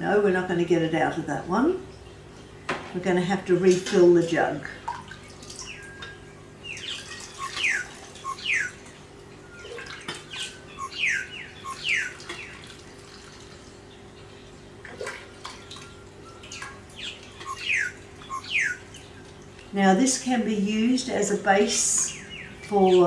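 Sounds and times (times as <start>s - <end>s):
faint steady hum: 0.0s - 23.0s
bird whistling falling notes: 5.6s - 8.8s, 9.4s - 12.6s, 15.8s - 18.9s.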